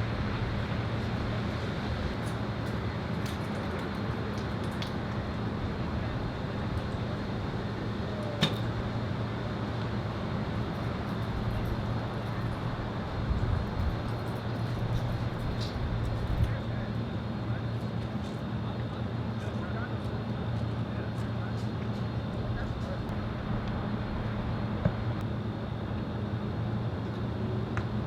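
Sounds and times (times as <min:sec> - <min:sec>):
low background hum: 0:00.0 - 0:28.0
wind buffeting microphone: 0:11.4 - 0:16.6.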